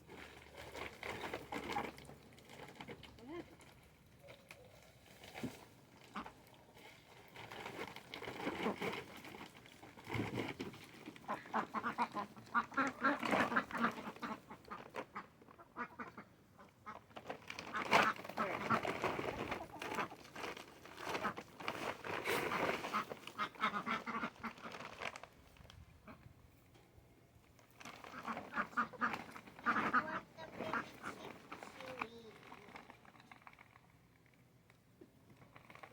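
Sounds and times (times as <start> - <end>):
ducks quacking: 11.2 - 17.0, 22.6 - 24.7, 28.1 - 31.7.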